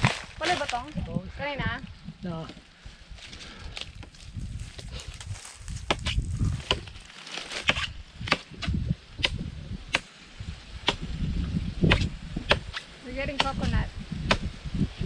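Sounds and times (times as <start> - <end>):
blade chopping into wood: 7.6 - 10.1, 11.8 - 14.5.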